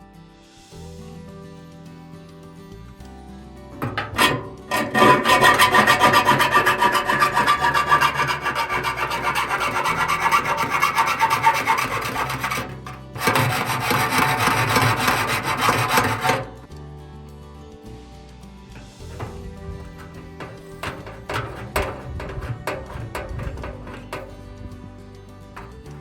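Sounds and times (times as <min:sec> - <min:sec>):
hand tool rasping through material: 0:03.8 - 0:16.6, 0:18.8 - 0:24.7.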